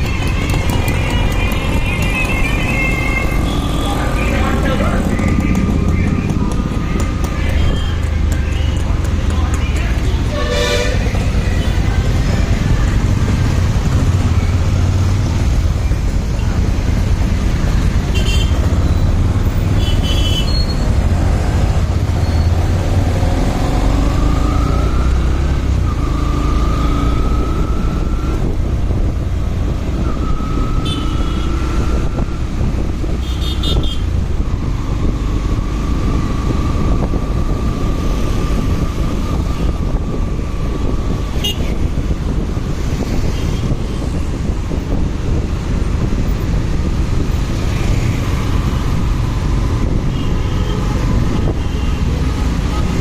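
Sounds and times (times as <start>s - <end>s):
motorcycle engine and wind rumble: 0.0s - 53.0s
vehicle horn toots: 10.3s - 11.2s, 30.8s - 31.6s.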